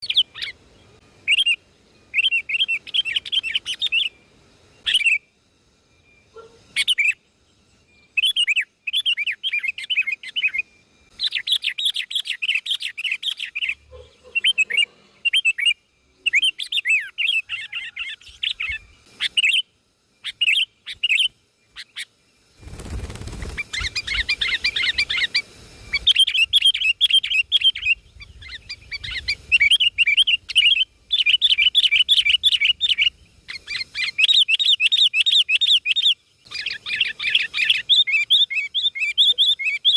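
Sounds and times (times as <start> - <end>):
songbird twittering: 0.0 - 39.9.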